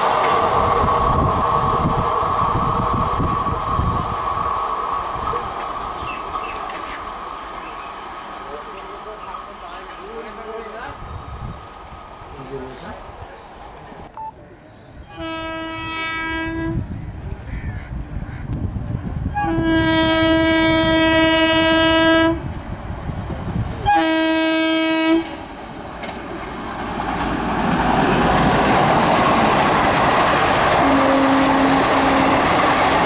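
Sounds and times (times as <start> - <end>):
train wheels clattering on track: 0.0 - 2.1, 5.2 - 10.9, 22.4 - 33.0
locomotive horn blasts: 15.1 - 16.8, 19.3 - 22.4, 23.8 - 25.3, 30.8 - 32.5.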